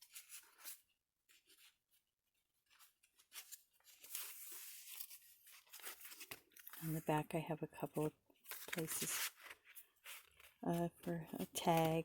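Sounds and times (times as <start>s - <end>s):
paper rustling and clicking: 2.6s - 6.9s, 8.4s - 12.0s.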